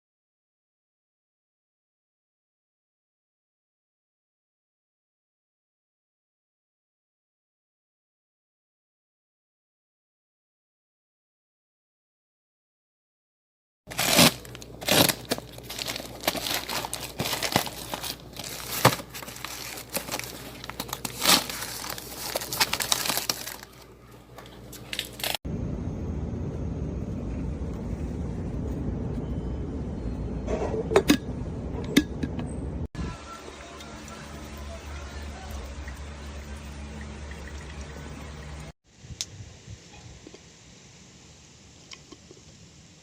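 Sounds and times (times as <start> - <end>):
packaging crinkling and tearing: 13.9 - 25.4
steady low hum: 13.9 - 43.0.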